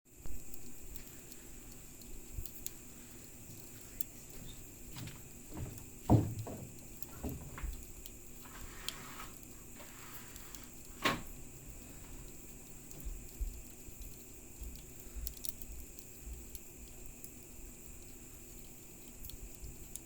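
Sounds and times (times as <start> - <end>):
campfire crackling: 0.1 - 20.0
fire pops: 0.2 - 20.0.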